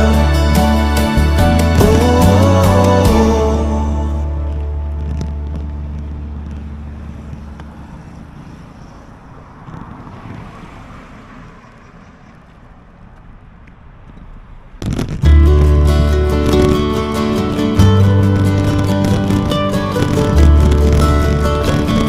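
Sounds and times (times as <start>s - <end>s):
background music: 0.0s - 6.5s, 15.2s - 22.0s
road noise: 0.0s - 22.0s
wind rushing over microphone: 1.0s - 22.0s.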